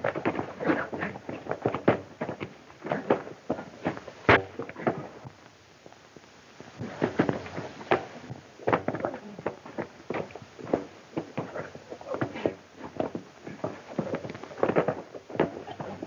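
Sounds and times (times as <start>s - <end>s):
irregular knocks and thumps: 0.0s - 6.0s, 6.6s - 16.0s.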